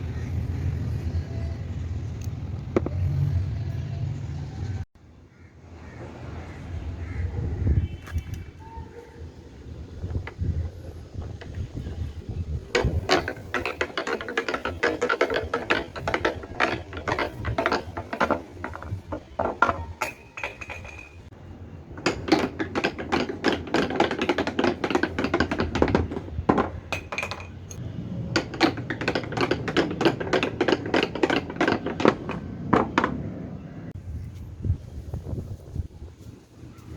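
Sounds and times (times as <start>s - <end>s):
snooker balls rolling and clacking: 12.8s - 21.3s, 22.0s - 27.8s, 28.4s - 33.7s.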